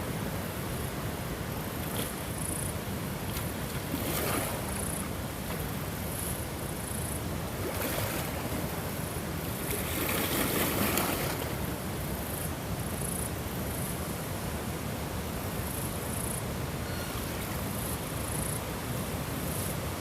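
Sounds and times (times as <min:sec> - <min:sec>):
ocean waves washing ashore: 0:00.0 - 0:12.9
faint high chirping: 0:16.8 - 0:17.5.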